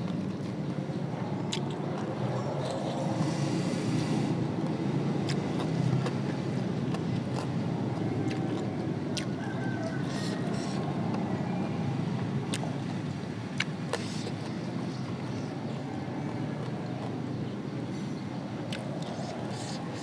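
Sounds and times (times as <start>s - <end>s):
sharp mouth clicks: 1.5s - 3.0s
chewing: 4.6s - 11.2s, 12.5s - 12.8s, 15.9s - 17.4s.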